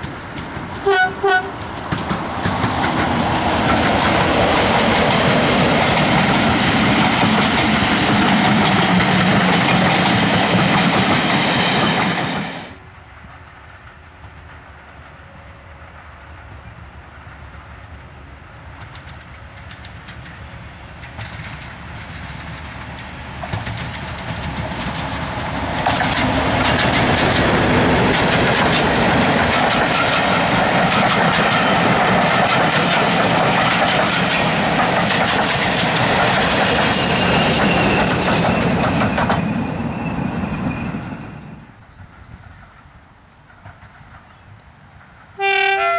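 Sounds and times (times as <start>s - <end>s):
wheels clicking over rail joints: 0.0s - 12.5s, 18.7s - 39.5s, 40.5s - 45.4s
diesel train passing: 0.0s - 45.9s.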